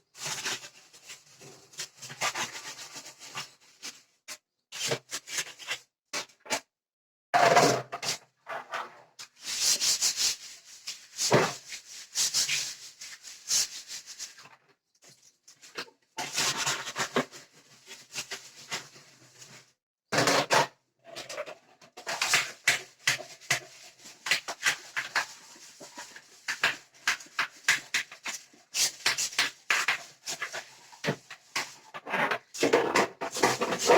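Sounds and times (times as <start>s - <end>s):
scrubbing and scraping: 22.0s - 33.9s.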